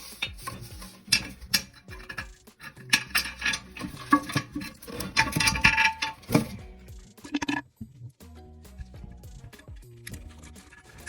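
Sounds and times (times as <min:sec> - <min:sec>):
metal bolts clinking on porcelain: 0:00.2 - 0:06.6.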